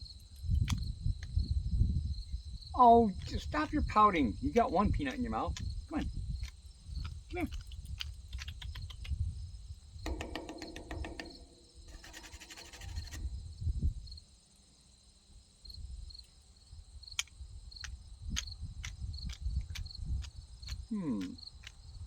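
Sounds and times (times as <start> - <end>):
insects chirping: 0.0 - 22.0
sharp clicks: 5.1 - 9.2, 10.1 - 13.2, 17.2 - 21.8
rapid clicking bursts: 10.1 - 13.2.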